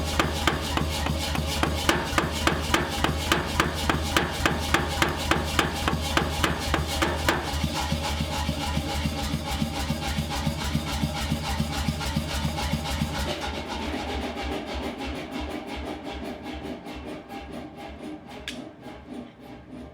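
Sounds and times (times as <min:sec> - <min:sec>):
hammer blows on steel anvil: 0:00.0 - 0:08.0
steady low hum: 0:00.0 - 0:08.2.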